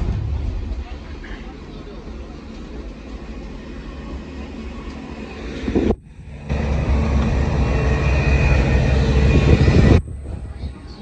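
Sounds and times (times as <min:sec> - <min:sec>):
train carriage rumbling on track: 0:00.0 - 0:11.0.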